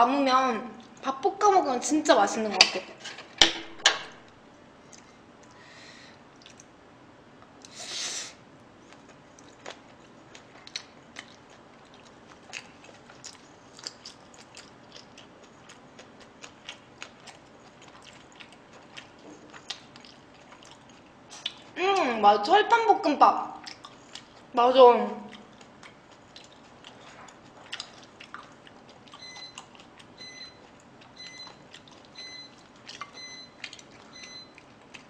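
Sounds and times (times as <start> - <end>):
wet chewing and mouth smacks: 6.3 - 6.8, 8.8 - 22.1, 23.6 - 24.5, 25.3 - 35.0.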